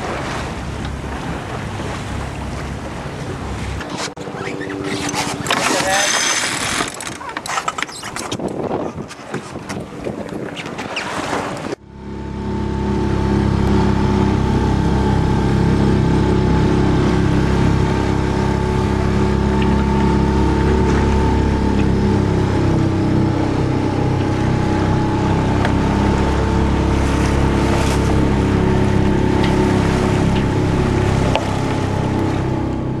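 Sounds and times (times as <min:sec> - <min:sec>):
boat engine humming: 0:00.0 - 0:33.0.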